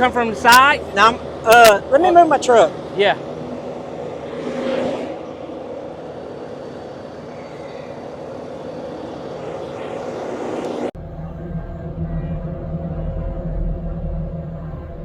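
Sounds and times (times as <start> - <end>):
low humming music: 11.0 - 15.0.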